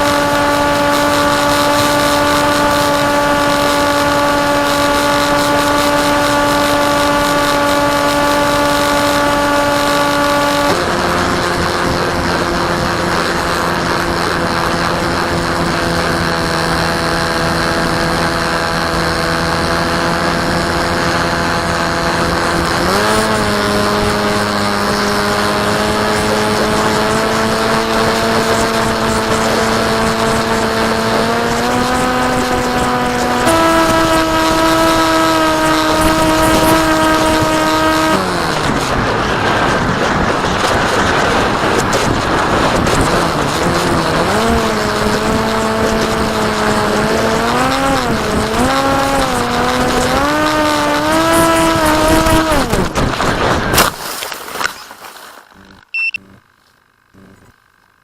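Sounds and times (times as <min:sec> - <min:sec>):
model plane motor whining: 0:00.0 - 0:53.7, 0:55.6 - 0:58.0
wind rushing over microphone: 0:00.0 - 0:54.0.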